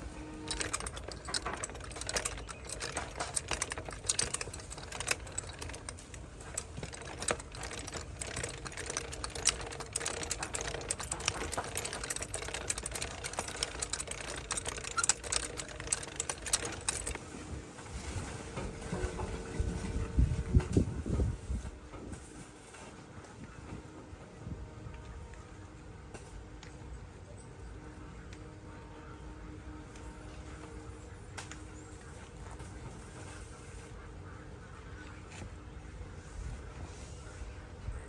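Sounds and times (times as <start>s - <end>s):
rapid irregular clicking: 0.0s - 20.8s
light metallic rattling: 0.0s - 21.7s.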